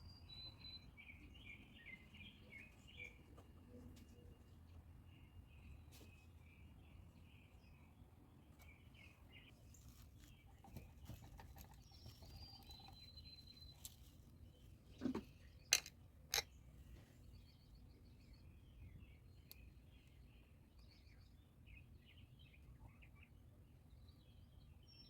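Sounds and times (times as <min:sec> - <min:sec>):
faint bird chirps: 0:00.0 - 0:15.8.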